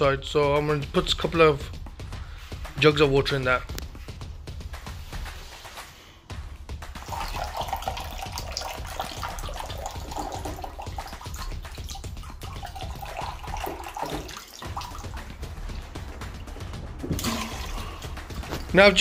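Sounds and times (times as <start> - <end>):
water pouring from jug: 7.0 - 16.4, 17.0 - 18.7.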